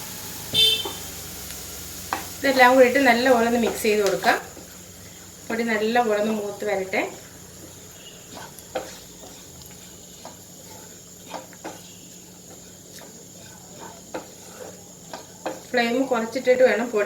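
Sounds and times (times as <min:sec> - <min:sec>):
oil hissing: 0:00.0 - 0:16.2
spoon scraping a pan: 0:07.2 - 0:16.2.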